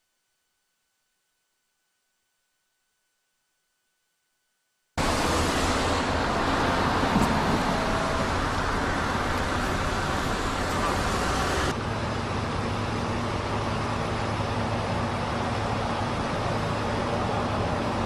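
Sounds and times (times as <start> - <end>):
rushing outdoor background noise: 5.0 - 18.0.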